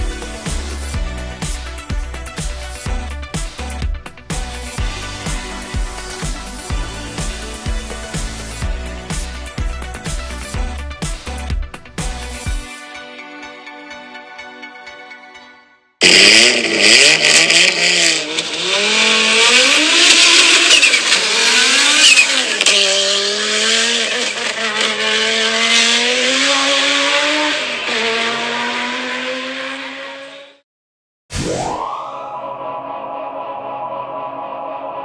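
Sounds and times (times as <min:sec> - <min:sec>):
rally car engine revving: 0:04.4 - 0:10.9, 0:16.0 - 0:30.6.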